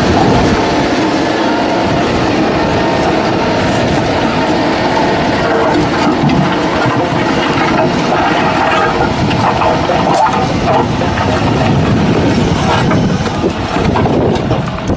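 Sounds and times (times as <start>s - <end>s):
heavy diesel engine under load: 0.0s - 14.9s
knocks and rattles: 4.9s - 14.9s.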